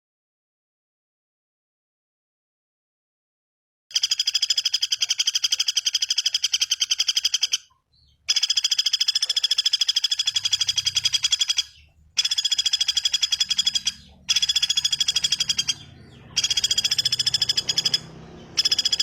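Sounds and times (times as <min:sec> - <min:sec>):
bird trilling high notes: 0:04.3 - 0:19.0.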